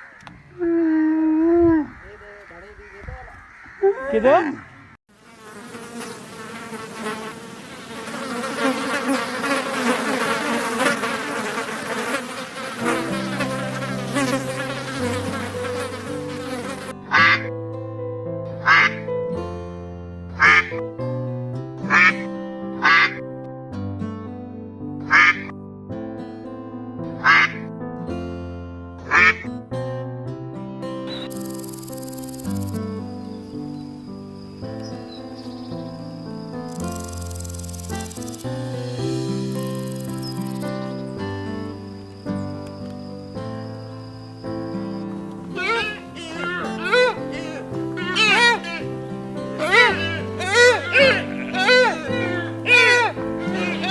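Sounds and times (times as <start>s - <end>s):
flying insect buzzing: 5.1s - 17.0s, 31.3s - 53.9s
sharp percussion hits: 38.6s - 40.8s.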